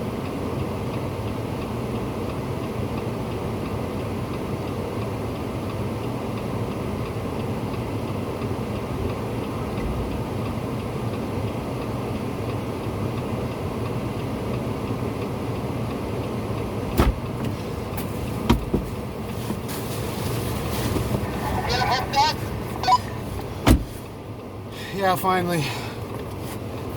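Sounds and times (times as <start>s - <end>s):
vehicle engine running: 7.2s - 26.9s.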